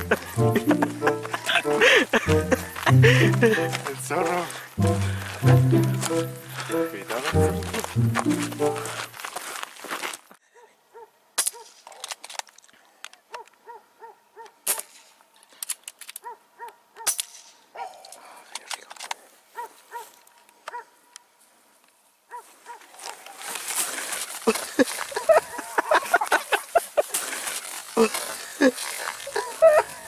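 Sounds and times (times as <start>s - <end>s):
footsteps through dry brush: 0.0s - 10.4s, 22.3s - 30.0s
rustling in dry grass: 5.6s - 10.3s, 22.0s - 30.0s.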